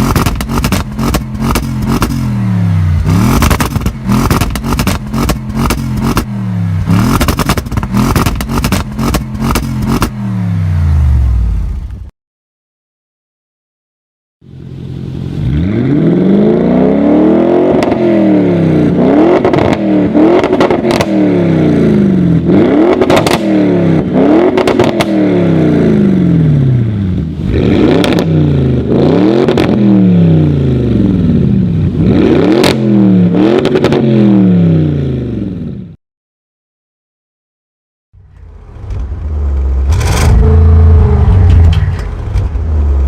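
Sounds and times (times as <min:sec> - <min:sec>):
exhaust cracks and pops: 0:00.0 - 0:02.2, 0:03.4 - 0:06.3, 0:07.1 - 0:10.2, 0:41.2 - 0:43.0
car engine revving: 0:00.0 - 0:11.8, 0:15.1 - 0:35.4, 0:38.5 - 0:43.0.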